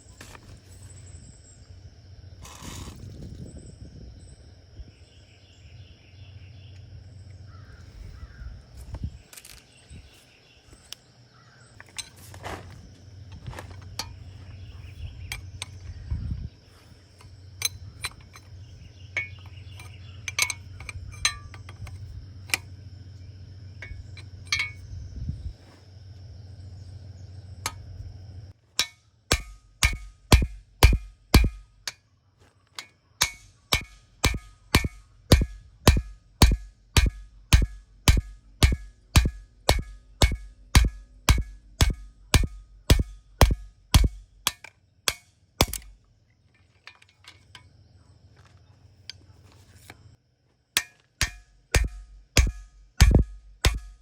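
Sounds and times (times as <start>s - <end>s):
steady low hum: 0.0s - 54.0s
hand tool clicks and knocks: 13.4s - 14.2s, 17.2s - 22.7s, 23.8s - 24.8s, 28.8s - 32.0s, 32.7s - 46.0s, 50.8s - 54.0s
music with woody percussive beat: 33.8s - 44.2s.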